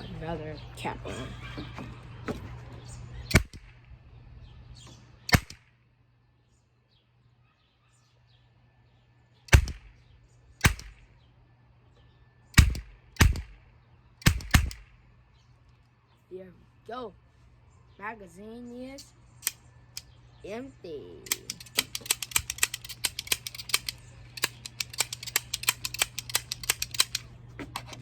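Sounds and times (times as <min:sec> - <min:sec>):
toy cap gun firing: 0:03.3 - 0:03.8, 0:05.3 - 0:05.8, 0:09.5 - 0:10.0, 0:10.6 - 0:11.0, 0:12.6 - 0:13.6, 0:14.2 - 0:15.0, 0:19.0 - 0:20.2, 0:21.2 - 0:27.3.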